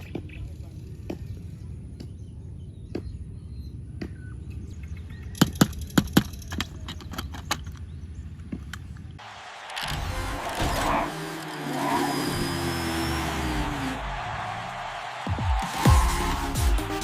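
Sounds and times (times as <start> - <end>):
toy vehicles clicking and knocking: 5.3 - 9.0.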